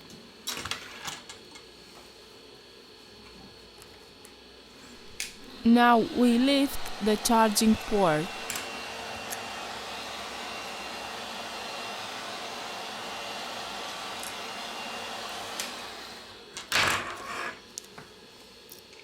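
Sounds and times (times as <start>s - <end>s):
heat gun blowing hot air: 5.0s - 16.4s.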